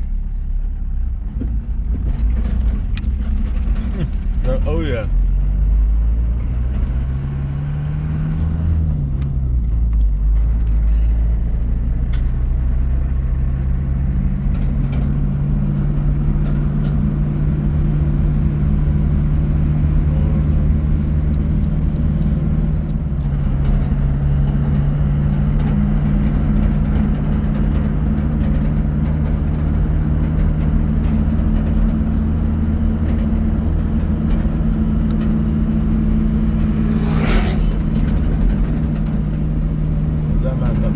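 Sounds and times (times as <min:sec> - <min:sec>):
vehicle engine running: 0:00.0 - 0:40.9.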